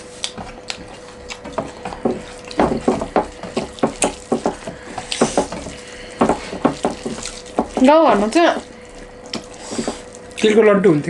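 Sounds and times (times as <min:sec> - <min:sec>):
wet chewing and mouth smacks: 0:00.0 - 0:02.6, 0:08.6 - 0:10.5
faint steady hum: 0:00.0 - 0:11.0.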